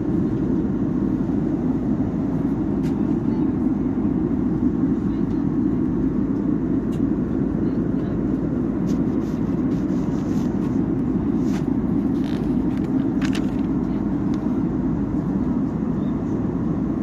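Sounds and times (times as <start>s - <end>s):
airliner cabin drone: 0.0s - 17.0s
faint clicks and rustles: 8.8s - 14.4s.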